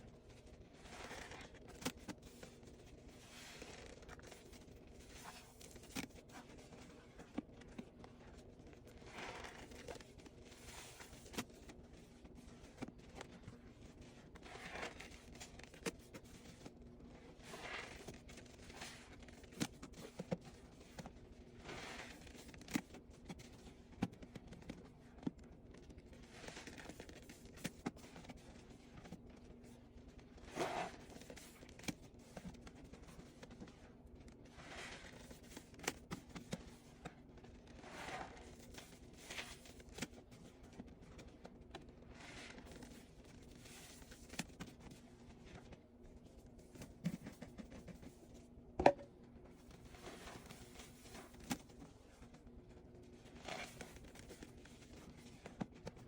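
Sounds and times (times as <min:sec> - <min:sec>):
faint steady hum: 0:00.0 - 0:56.0
soapy sponge squishing: 0:00.7 - 0:01.6, 0:06.6 - 0:11.2, 0:14.0 - 0:15.4, 0:17.0 - 0:19.2, 0:21.5 - 0:22.2, 0:32.6 - 0:35.8, 0:36.5 - 0:39.6, 0:41.9 - 0:43.8, 0:49.7 - 0:52.2, 0:53.2 - 0:55.6.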